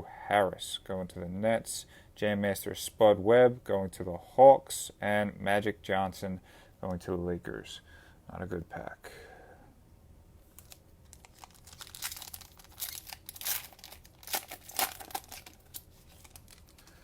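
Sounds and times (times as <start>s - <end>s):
cellophane wrapper crinkling: 10.5s - 17.0s.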